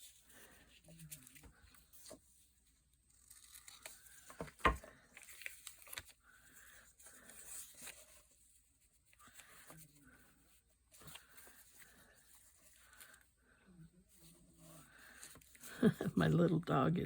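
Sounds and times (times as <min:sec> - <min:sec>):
paper rustling: 0:00.0 - 0:13.2
tape being torn: 0:03.1 - 0:06.2.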